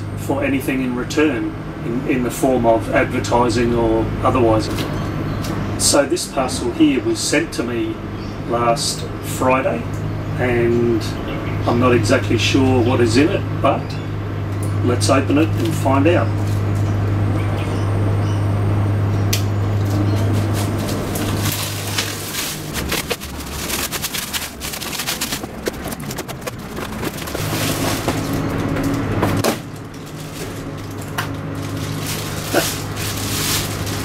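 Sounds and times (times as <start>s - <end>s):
steady low hum: 0.0s - 34.0s
cardboard parcel being torn open: 19.9s - 34.0s.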